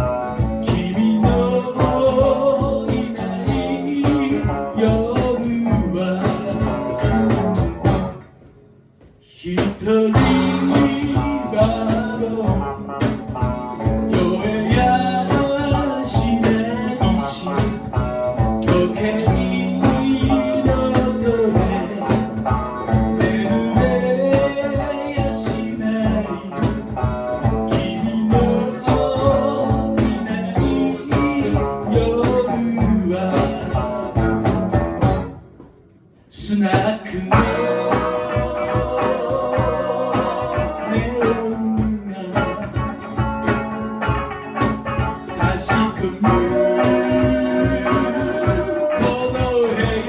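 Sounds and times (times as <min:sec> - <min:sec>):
strummed guitar: 0:00.0 - 0:50.0
person singing: 0:00.6 - 0:07.4, 0:09.5 - 0:13.2, 0:14.0 - 0:34.2, 0:36.5 - 0:50.0
steady driving beat: 0:10.1 - 0:35.8, 0:37.3 - 0:50.0.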